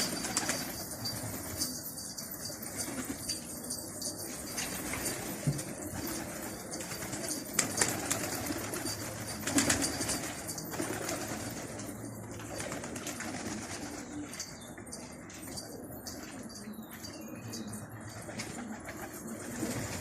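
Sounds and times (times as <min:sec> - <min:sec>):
wings flapping: 0:00.0 - 0:01.7, 0:04.6 - 0:14.1
pigeons cooing: 0:00.0 - 0:20.0.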